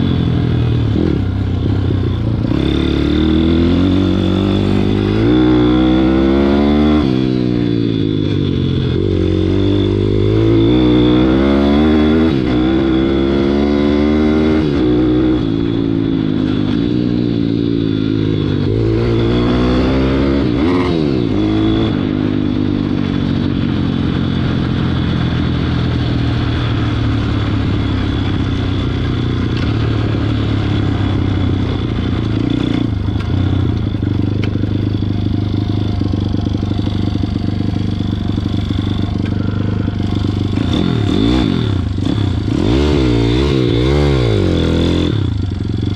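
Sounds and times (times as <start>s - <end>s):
pit bike engine revving: 0.0s - 45.9s.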